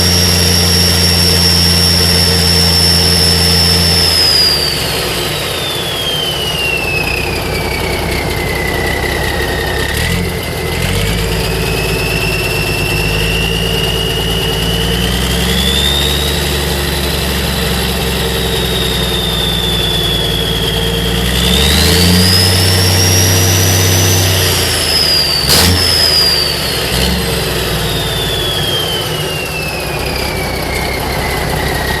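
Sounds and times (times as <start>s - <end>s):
diesel engine revving: 0.0s - 32.0s
turbocharger whistle: 0.0s - 32.0s.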